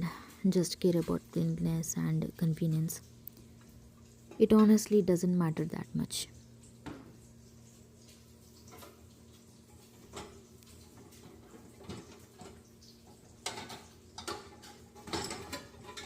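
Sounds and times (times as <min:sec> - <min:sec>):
faint steady hum: 0:00.0 - 0:16.0
silverware and dishes clinking: 0:10.0 - 0:16.0.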